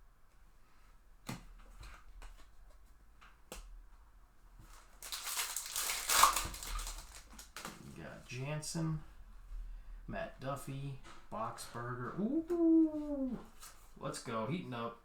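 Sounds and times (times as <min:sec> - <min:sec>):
pack wrapper rustling: 0:04.6 - 0:08.0.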